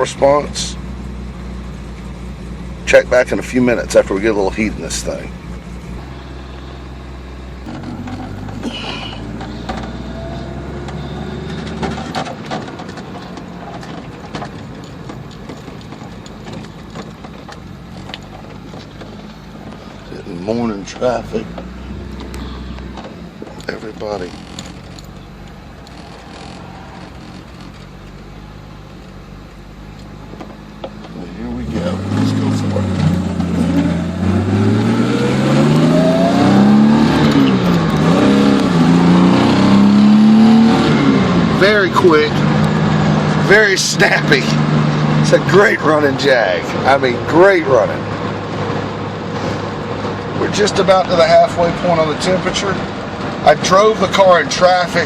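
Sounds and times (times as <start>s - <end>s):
car engine running: 0.0s - 55.0s
engine clicks: 10.8s - 33.8s.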